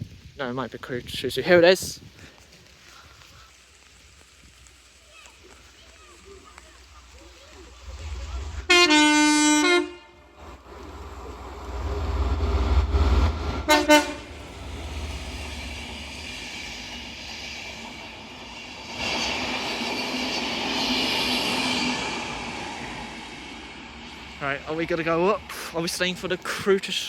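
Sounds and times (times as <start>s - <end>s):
rail and wheel noise: 0.0s - 27.0s
train rumbling past: 4.7s - 27.0s
train horn toot: 8.6s - 10.3s, 13.6s - 14.4s.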